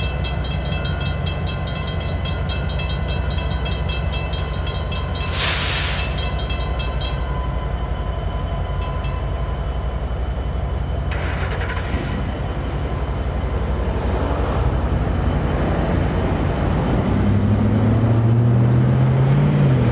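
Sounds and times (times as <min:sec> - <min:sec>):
crossing signal bell ringing: 0:00.0 - 0:10.1
diesel locomotives rumbling: 0:00.0 - 0:19.9.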